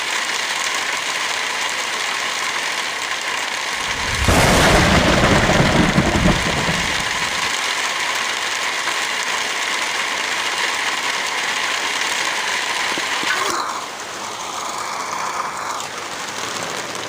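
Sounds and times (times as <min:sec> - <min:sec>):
heavy rain: 0:00.0 - 0:17.0
rolling thunder: 0:03.8 - 0:07.5.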